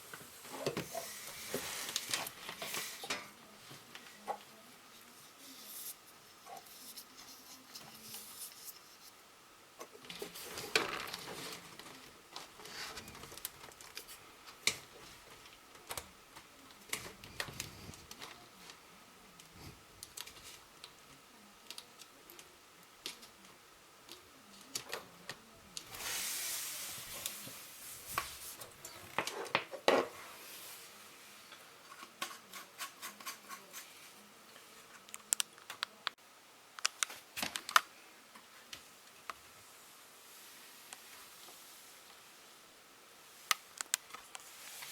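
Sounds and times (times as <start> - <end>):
rustling scraping noise: 0.0 - 3.3, 10.1 - 13.4.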